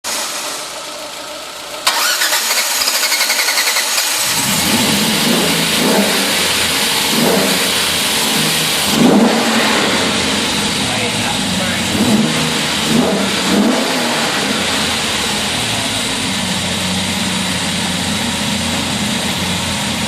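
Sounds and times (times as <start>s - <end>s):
car engine revving: 0.0s - 20.0s
car starter cranking: 1.7s - 5.8s.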